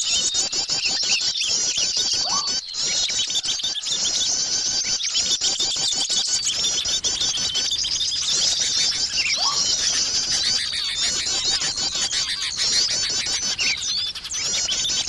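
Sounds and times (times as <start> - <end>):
songbirds chattering: 0.0 - 15.0
rising whistle: 2.2 - 2.6, 9.2 - 9.8.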